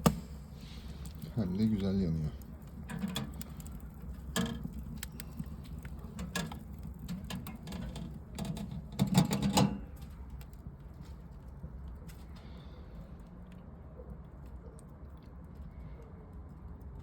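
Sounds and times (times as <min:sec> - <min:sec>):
wood fire crackling and popping: 0:00.0 - 0:12.2
low steady hum: 0:00.0 - 0:17.0.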